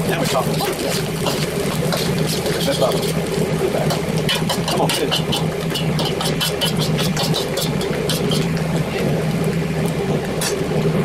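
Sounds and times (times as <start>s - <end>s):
corn sizzling and crackling: 0.0s - 11.0s
metal spoon scraping a pan: 0.3s - 8.6s.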